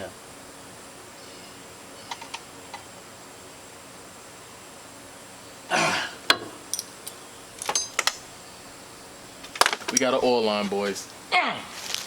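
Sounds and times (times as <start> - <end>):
person exhaling or clearing throat: 5.7 - 6.3
metallic clinks: 6.7 - 8.2.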